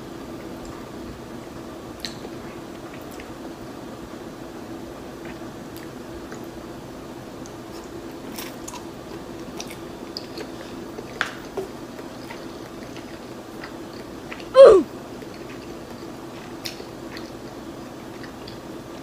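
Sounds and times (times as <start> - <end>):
faint steady hum: 0.0 - 19.0
chewing noodles: 7.4 - 14.5, 15.1 - 19.0.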